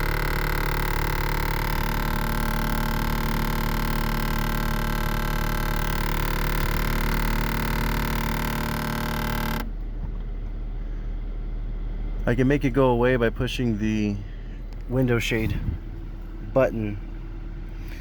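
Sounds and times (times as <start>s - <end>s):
sunshade motor humming: 0.0s - 9.8s.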